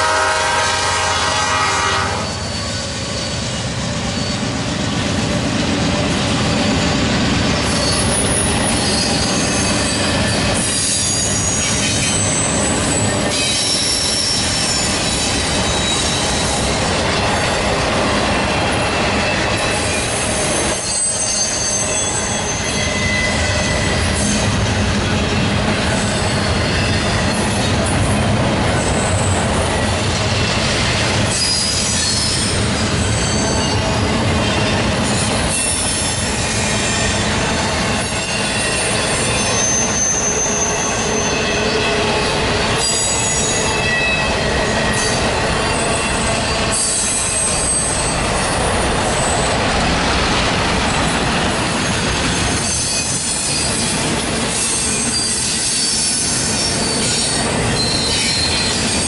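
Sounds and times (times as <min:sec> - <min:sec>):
freight train wheels rumbling on rail: 0:00.0 - 0:59.0
high-pitched wheel squeals: 0:02.0 - 0:04.6, 0:06.4 - 0:17.8, 0:18.7 - 0:24.6, 0:31.2 - 0:49.6, 0:51.6 - 0:59.0.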